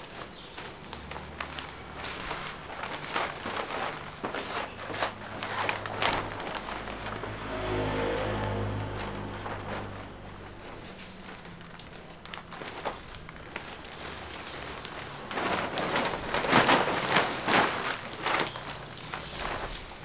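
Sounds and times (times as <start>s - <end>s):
plastic bag crinkling: 0.0s - 6.9s, 10.8s - 20.0s.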